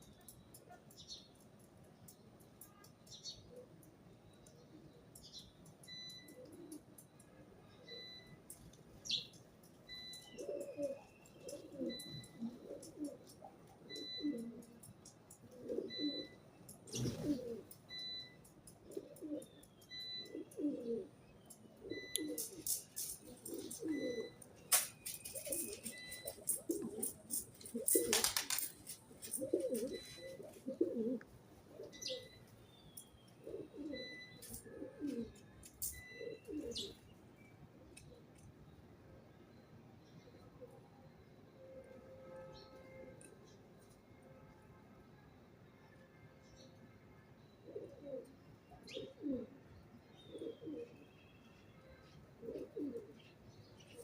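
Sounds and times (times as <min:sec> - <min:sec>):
small birds chirping: 0:00.0 - 0:38.9
pigeons cooing: 0:10.2 - 0:18.0, 0:18.7 - 0:21.2, 0:21.8 - 0:32.4, 0:33.4 - 0:37.0, 0:47.6 - 0:49.6, 0:50.3 - 0:51.0, 0:52.4 - 0:53.2
wings flapping: 0:26.5 - 0:30.0.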